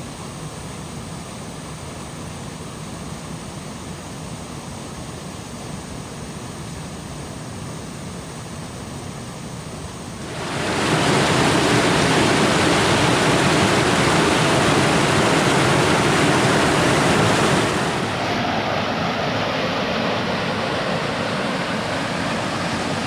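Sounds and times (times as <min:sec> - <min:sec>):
waterfall rushing: 0:10.2 - 0:23.0.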